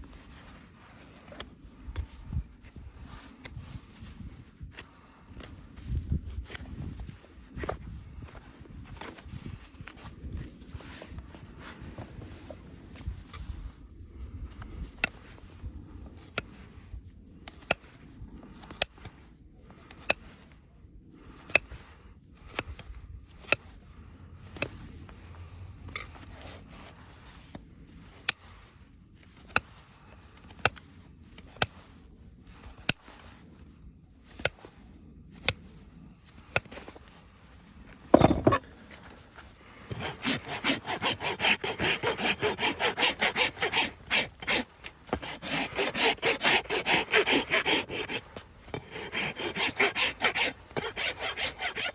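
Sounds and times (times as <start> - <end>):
loud scrape: 38.1 - 38.7
rasp filing hoof: 38.2 - 38.7, 39.8 - 51.9.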